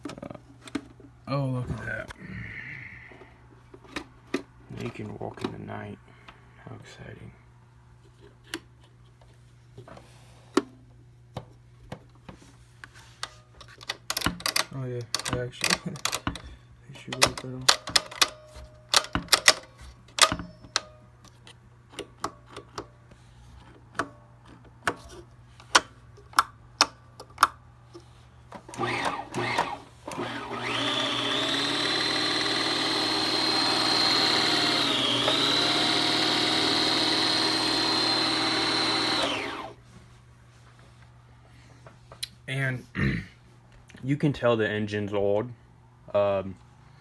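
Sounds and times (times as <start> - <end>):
sharp clicks: 28.7 - 39.7
sewing machine motor whining: 28.7 - 39.8.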